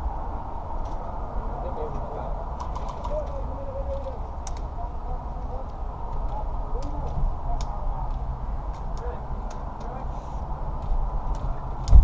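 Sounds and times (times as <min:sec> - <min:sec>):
low outdoor rumble: 0:00.0 - 0:12.0
sharp clicks: 0:02.6 - 0:04.7, 0:10.8 - 0:12.0.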